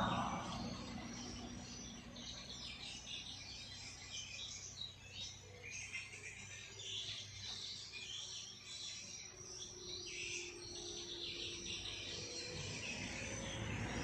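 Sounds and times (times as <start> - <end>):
low background rumble: 0.0 - 4.9
small birds chirping: 0.0 - 14.0.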